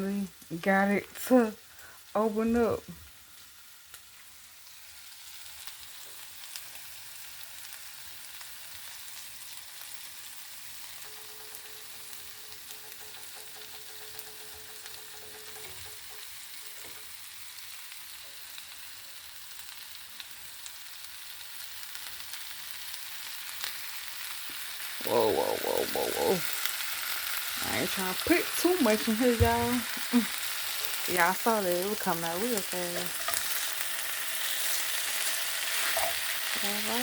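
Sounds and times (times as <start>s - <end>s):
chili sizzling in a pot: 0.0s - 37.0s.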